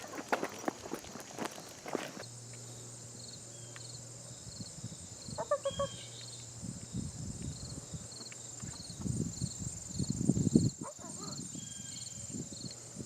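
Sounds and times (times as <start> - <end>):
footsteps: 0.0 - 2.3
insects chirping: 0.0 - 13.0.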